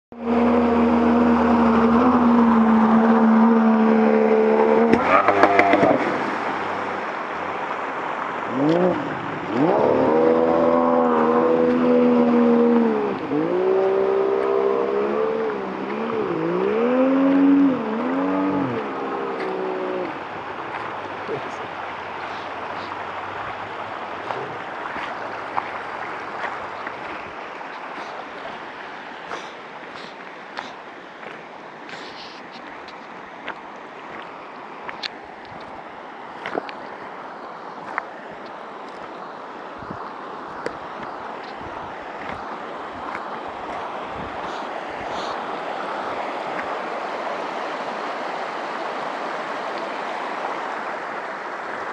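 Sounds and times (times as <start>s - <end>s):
vehicle engine running and revving: 0.1s - 6.9s, 8.5s - 20.2s
small splashes: 0.1s - 51.9s
stream water rushing: 0.1s - 51.9s.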